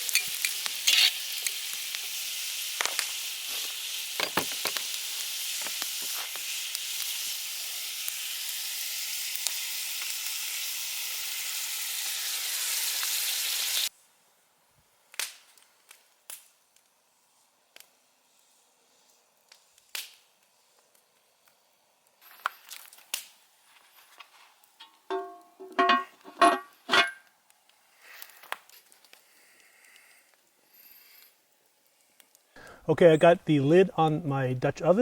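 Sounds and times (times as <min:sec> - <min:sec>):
food sizzling in a pot: 0:00.0 - 0:14.0, 0:21.3 - 0:32.6
faint ticks: 0:27.7 - 0:30.4.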